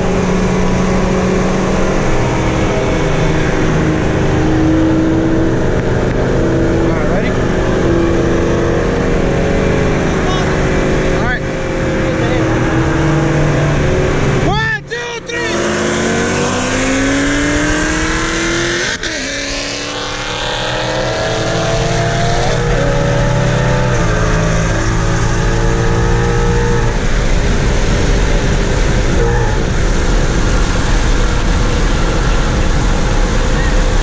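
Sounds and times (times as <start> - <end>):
car engine accelerating hard: 0.0 - 34.0
road and wind noise: 0.0 - 34.0.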